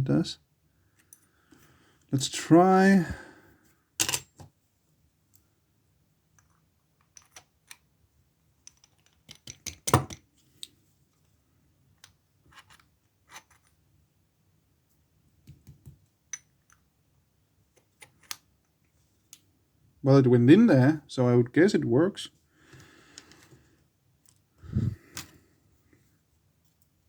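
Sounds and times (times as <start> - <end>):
metal clicks and scrapes of padlock: 12.5 - 13.7.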